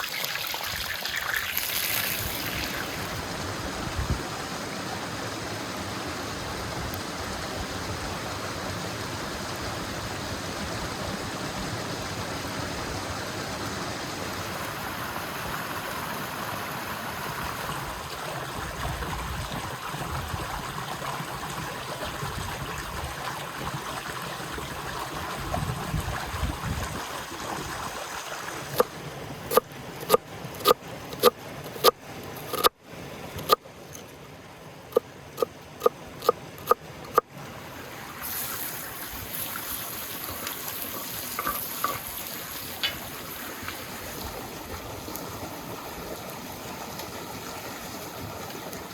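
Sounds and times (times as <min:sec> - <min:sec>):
river water rushing: 0:01.0 - 0:18.6, 0:34.9 - 0:48.9.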